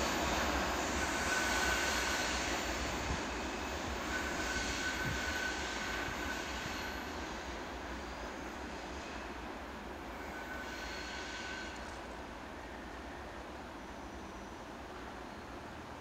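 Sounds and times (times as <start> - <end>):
distant diesel locomotive drone: 0.0 - 16.0
train wheels rumbling on rail: 0.0 - 16.0
wheel flange squeal: 0.9 - 2.9, 3.6 - 7.4, 10.1 - 12.0.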